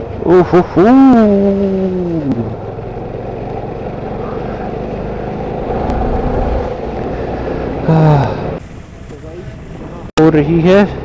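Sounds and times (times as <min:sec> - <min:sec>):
wind and road noise: 0:00.0 - 0:10.1
motorcycle running: 0:01.2 - 0:08.6.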